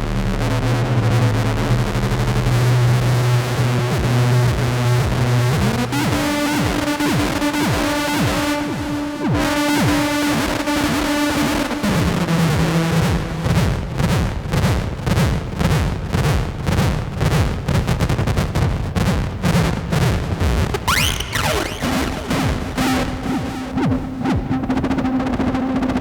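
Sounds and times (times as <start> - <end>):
low synth drone: 0.0 - 13.6, 20.8 - 25.9
warbling synth pitch sweeps: 20.9 - 23.4.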